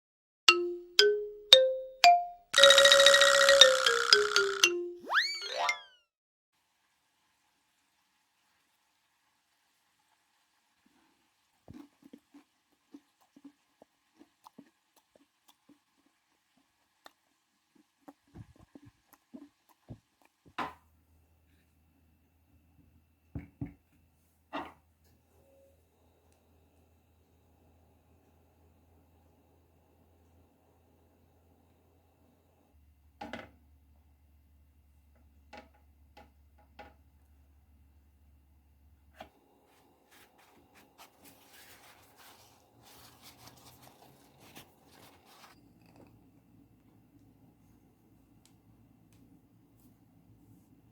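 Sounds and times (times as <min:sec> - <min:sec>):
rubbing and scraping: 0:40.1 - 0:45.6.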